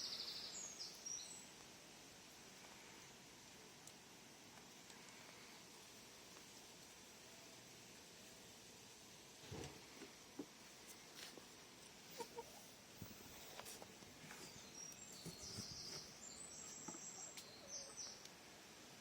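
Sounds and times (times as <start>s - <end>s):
chicken clucking softly: 12.0s - 12.8s.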